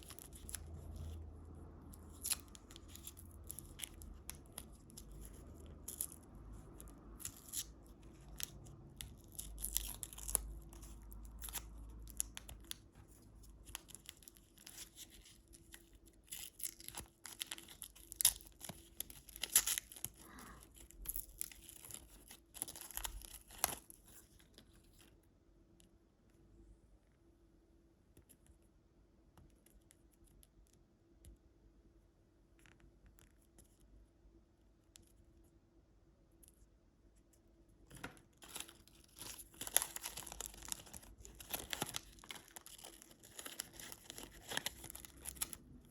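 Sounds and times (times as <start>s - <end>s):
plastic wrapper crinkling: 0.0s - 1.3s, 1.9s - 25.1s, 37.9s - 45.9s.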